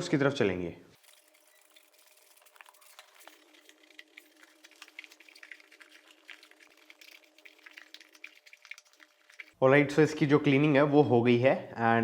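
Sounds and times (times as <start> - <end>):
wet rubbing: 1.0 - 9.6.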